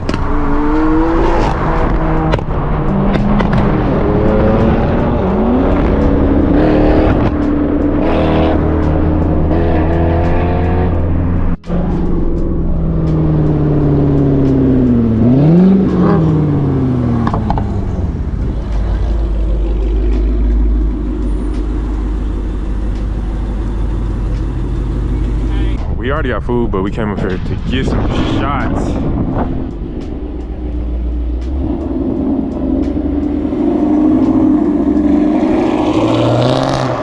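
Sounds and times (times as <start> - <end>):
car engine accelerating: 0.0 - 37.0.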